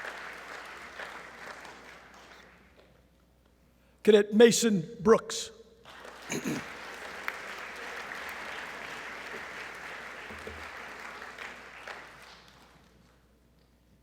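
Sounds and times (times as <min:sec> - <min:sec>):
audience applauding: 0:00.0 - 0:02.7, 0:05.9 - 0:13.0.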